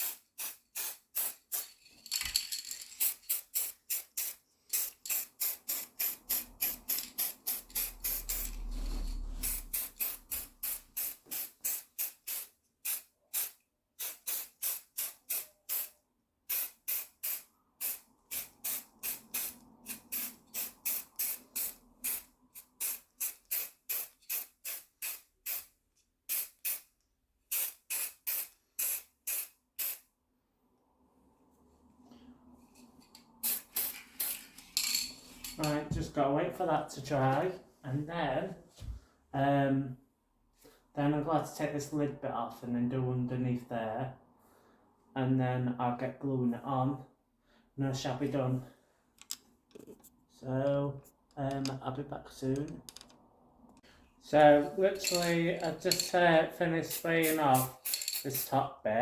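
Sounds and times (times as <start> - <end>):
spray paint can hissing: 0.0 - 1.7, 3.0 - 8.7, 9.4 - 15.9, 16.5 - 25.7, 26.3 - 26.9, 27.5 - 30.0, 33.4 - 34.5.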